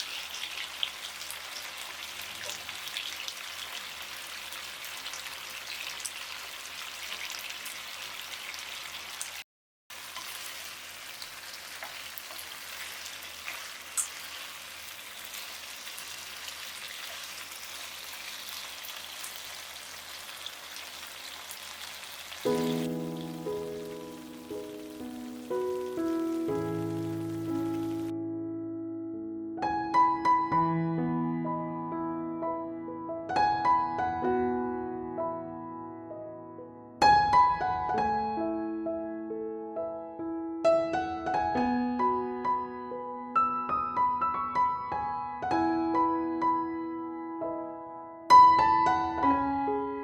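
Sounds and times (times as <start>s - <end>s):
chicken wings sizzling: 0.0s - 28.1s
background music: 22.5s - 43.6s.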